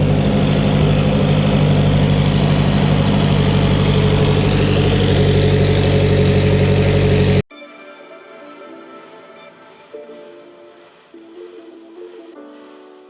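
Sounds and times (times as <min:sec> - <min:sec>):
car engine idling: 0:00.0 - 0:07.4.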